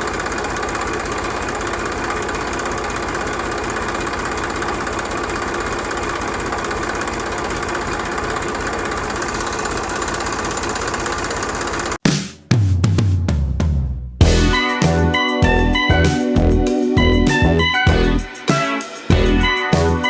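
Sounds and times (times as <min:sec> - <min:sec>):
small motor chattering: 0:00.0 - 0:12.0
music with heavy bass: 0:13.6 - 0:20.0.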